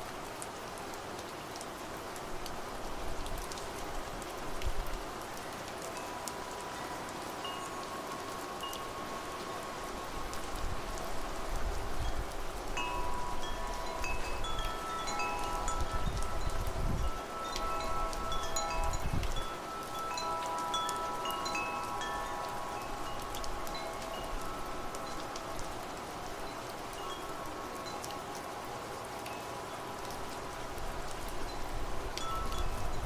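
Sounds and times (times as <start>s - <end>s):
rain hiss: 0.0s - 33.0s
wind gusts: 0.0s - 33.0s
wind chimes ringing: 5.4s - 11.3s, 11.9s - 30.0s, 31.4s - 33.0s.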